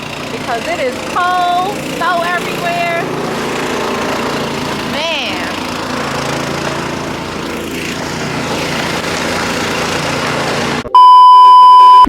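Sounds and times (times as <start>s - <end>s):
snow blower engine running: 0.0s - 10.9s
censor bleep: 10.9s - 12.0s.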